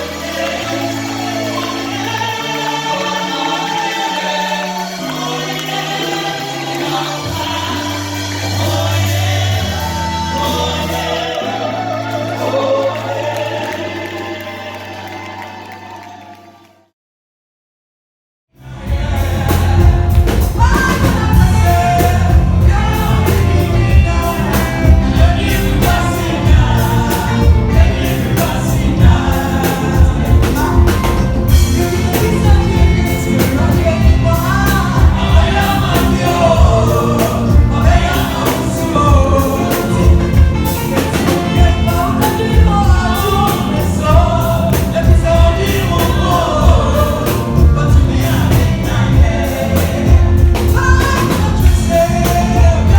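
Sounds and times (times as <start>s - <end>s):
group singing gospel: 0.0s - 16.8s, 18.6s - 52.9s
heavy steady beat: 18.9s - 52.9s.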